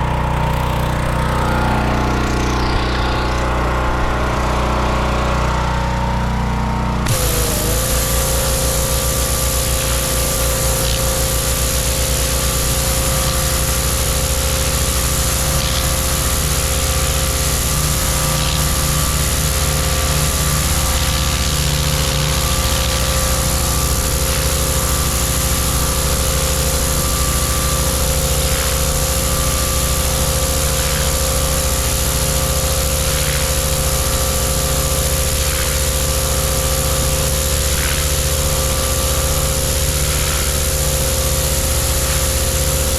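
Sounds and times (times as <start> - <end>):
pressure washer engine running: 0.0 - 42.9
water jet hissing on concrete: 7.1 - 42.9.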